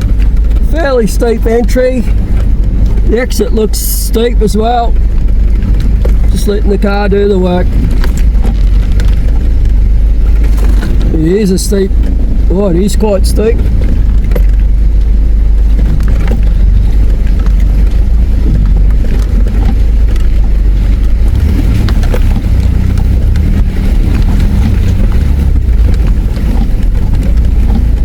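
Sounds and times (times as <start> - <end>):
low engine rumble: 0.0 - 28.0.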